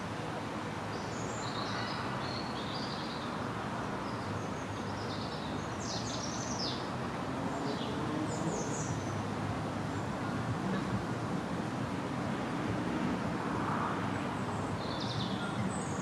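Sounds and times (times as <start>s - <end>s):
small birds chirping: 14.8s - 16.0s.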